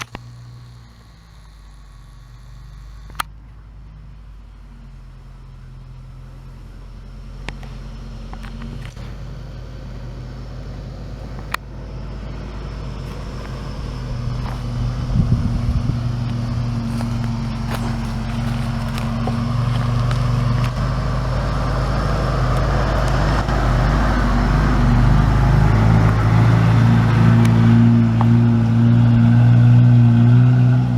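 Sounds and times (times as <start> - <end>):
sharp clicks: 0.0 - 3.6, 11.1 - 11.7, 16.2 - 21.2
car engine running: 0.0 - 30.9.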